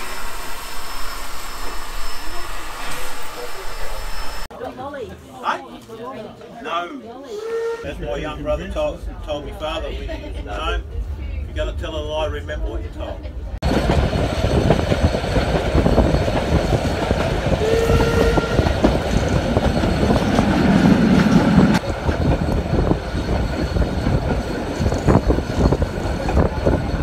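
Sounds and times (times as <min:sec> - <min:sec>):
train wheels clattering: 0:13.6 - 0:27.0.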